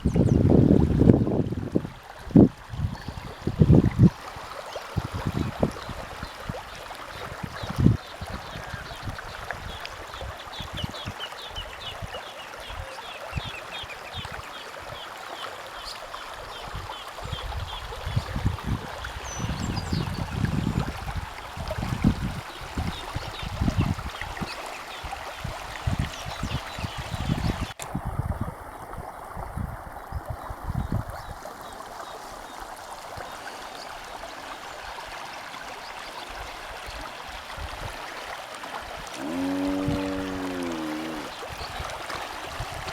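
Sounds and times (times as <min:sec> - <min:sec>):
running water from heavy rain: 0:00.0 - 0:42.9.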